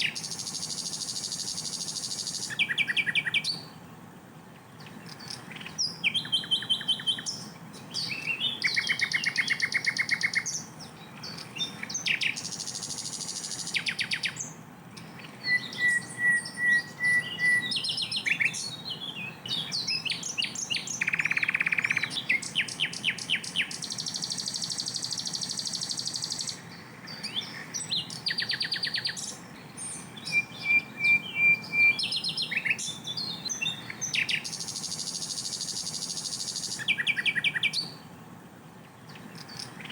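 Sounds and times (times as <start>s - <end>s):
bird singing trills and whistles: 0.0s - 3.8s, 4.8s - 38.1s, 39.1s - 39.9s.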